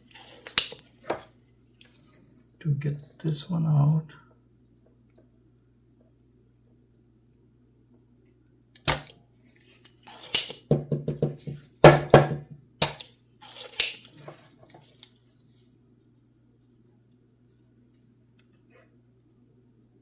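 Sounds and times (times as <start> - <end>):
desoldering pump snapping: 0.0 - 1.2, 8.8 - 9.2, 9.8 - 10.7, 11.8 - 14.3.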